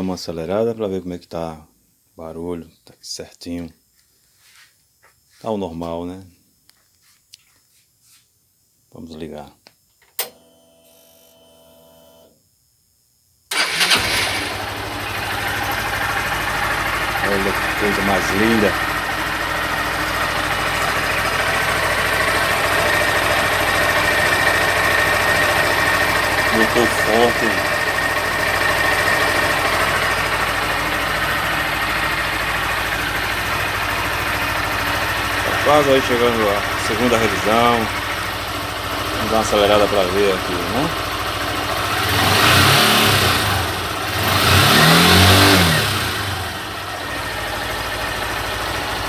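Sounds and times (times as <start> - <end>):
electric starter cranking: 13.5 - 18.8, 19.8 - 30.7, 41.9 - 47.4
fuel pump whine: 13.5 - 49.0
motorcycle engine idling: 13.5 - 49.0.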